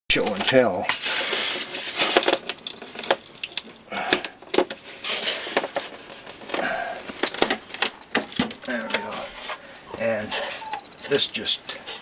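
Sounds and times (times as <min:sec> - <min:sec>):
short scrapes or rustles: 0:00.9 - 0:02.2, 0:04.9 - 0:06.2, 0:09.1 - 0:09.7
sharp clicks and light knocks: 0:02.1 - 0:04.8, 0:05.6 - 0:09.0.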